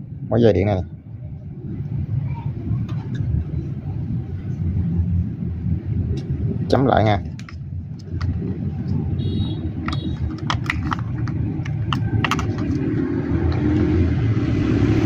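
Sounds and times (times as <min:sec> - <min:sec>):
low rumble: 0:00.0 - 0:15.0
hand tools clicking and tapping: 0:07.3 - 0:08.4, 0:09.7 - 0:13.7.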